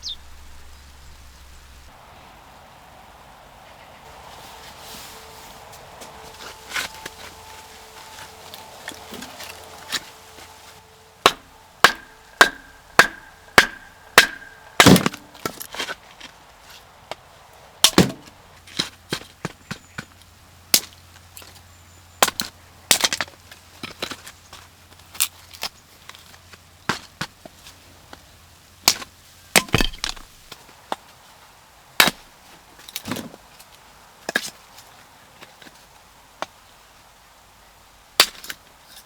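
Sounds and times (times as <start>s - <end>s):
axe chopping firewood: 11.2s - 16.0s, 17.8s - 20.1s, 28.8s - 30.3s, 32.0s - 32.2s, 38.2s - 38.6s.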